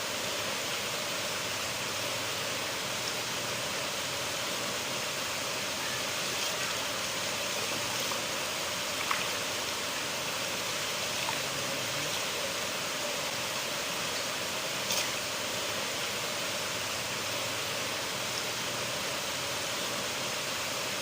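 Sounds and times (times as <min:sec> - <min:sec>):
river water rushing: 0:00.0 - 0:21.0
faint water splash: 0:08.9 - 0:09.5, 0:11.1 - 0:11.6.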